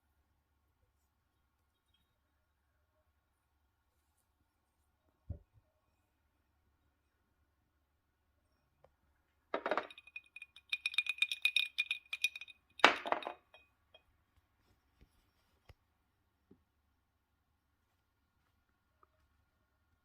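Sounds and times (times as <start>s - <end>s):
glass bottle clinking and rattling: 9.6s - 13.6s
knock on glass bottle: 9.6s - 13.6s.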